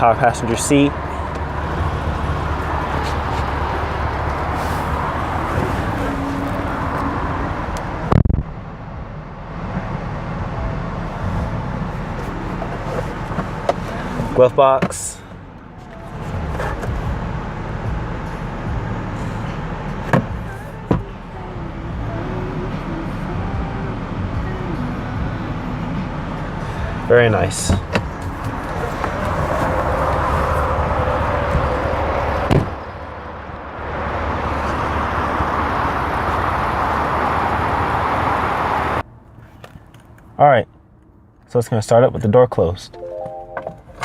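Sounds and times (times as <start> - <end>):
steady low rumble: 0.0 - 22.2
car door shutting thud: 32.4 - 32.8.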